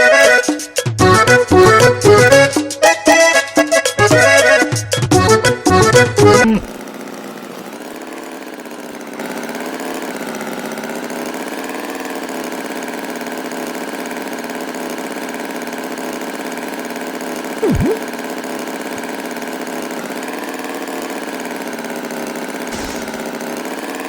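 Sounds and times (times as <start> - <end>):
music: 0.0 - 6.6
engine idling hum: 22.3 - 24.0.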